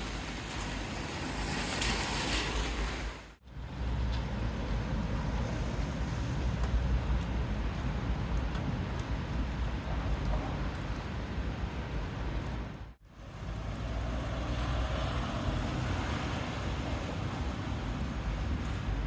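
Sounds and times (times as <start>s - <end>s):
heavy rain hissing: 0.0s - 3.4s.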